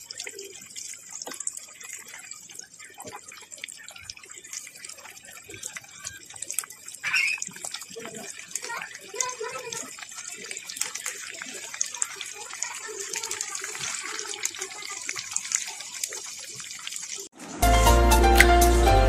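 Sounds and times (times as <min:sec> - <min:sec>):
chicken deep-frying in hot oil: 0:00.0 - 0:17.9
loud music: 0:17.6 - 0:19.0.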